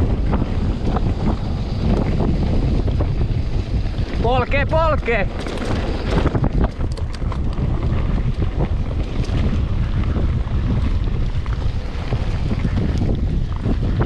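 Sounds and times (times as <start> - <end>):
bike clicks and rattles: 0.0 - 14.0
wind buffeting microphone: 0.0 - 14.0.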